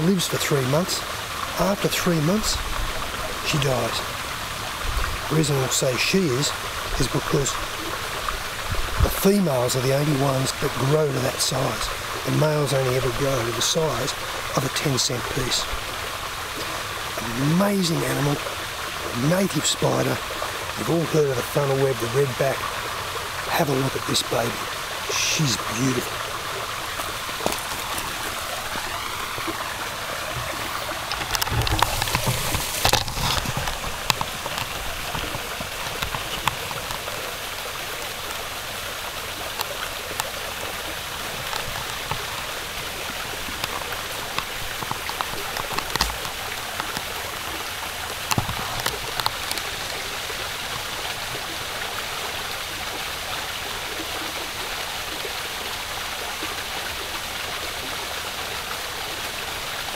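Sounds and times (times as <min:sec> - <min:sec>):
running water in a stream: 0:00.0 - 0:59.9.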